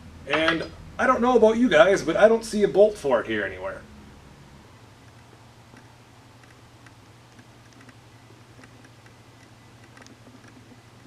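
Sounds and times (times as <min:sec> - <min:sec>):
steady low hum: 0:00.0 - 0:11.0
light clicks and ticks: 0:05.0 - 0:08.0.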